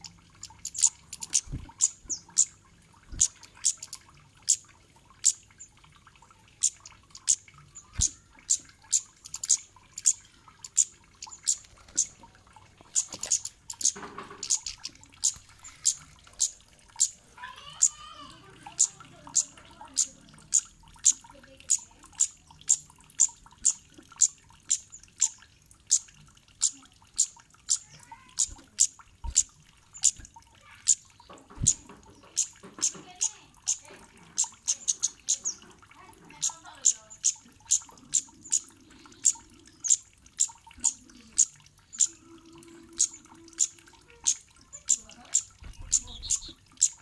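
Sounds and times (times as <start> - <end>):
bird chip calls: 12.9 - 18.1, 43.0 - 47.0.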